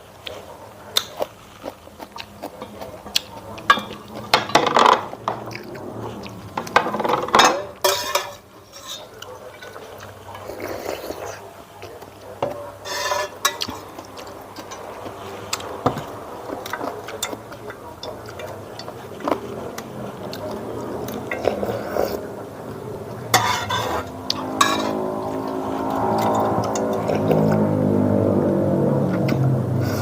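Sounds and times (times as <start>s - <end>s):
cutlery clinking on dishes: 3.6s - 5.4s, 6.6s - 10.5s, 12.4s - 15.0s, 23.3s - 25.0s.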